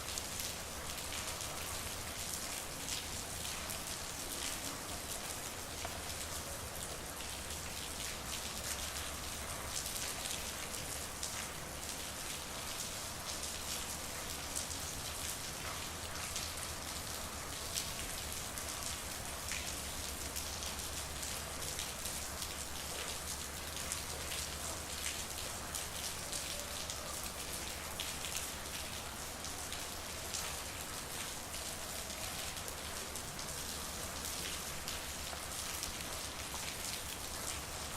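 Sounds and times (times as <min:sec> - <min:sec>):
rain pattering on hard surfaces: 0:00.0 - 0:37.9.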